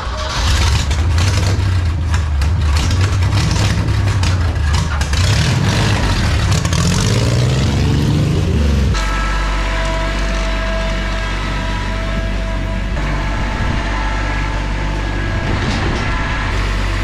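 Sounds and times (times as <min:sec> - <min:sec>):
rattling and clunking: 0:00.0 - 0:07.2, 0:08.9 - 0:17.0
vehicle engine revving: 0:00.0 - 0:17.0.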